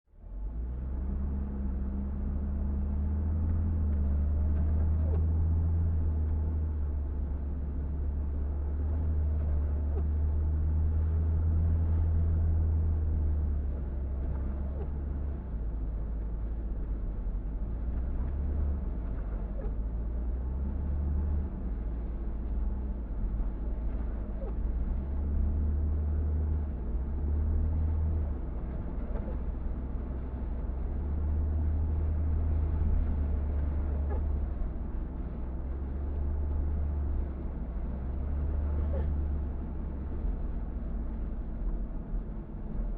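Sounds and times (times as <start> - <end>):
car engine and road rumble: 0.0 - 42.9.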